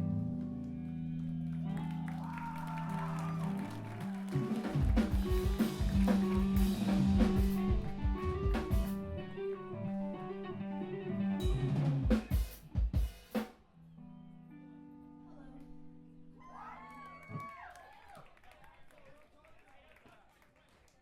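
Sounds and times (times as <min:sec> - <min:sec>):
screamo band playing: 0:02.2 - 0:13.6.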